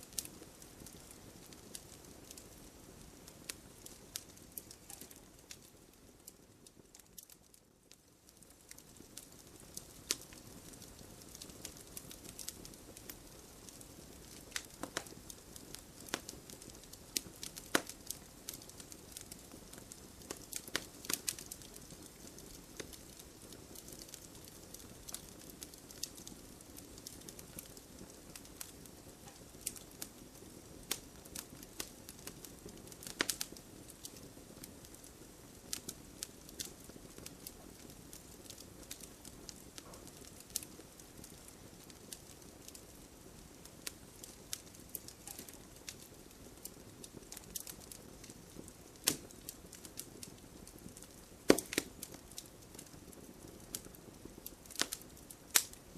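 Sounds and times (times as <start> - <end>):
campfire crackling and popping: 0.0 - 55.9
loud wood snaps: 51.5 - 52.0.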